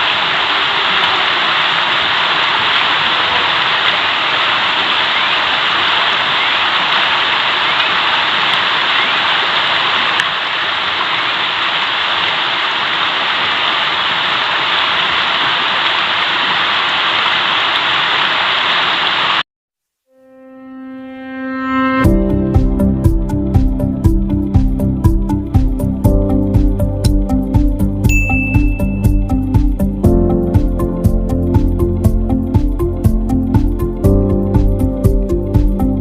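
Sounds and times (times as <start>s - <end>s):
river rushing over rocks: 0.0s - 19.4s.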